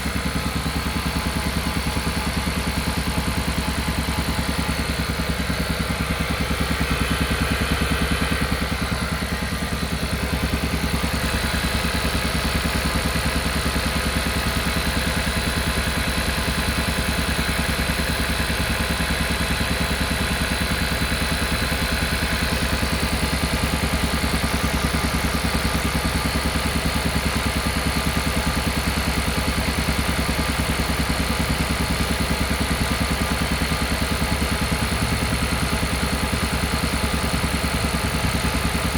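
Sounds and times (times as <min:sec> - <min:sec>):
car engine pulsing: 0:00.0 - 0:13.8.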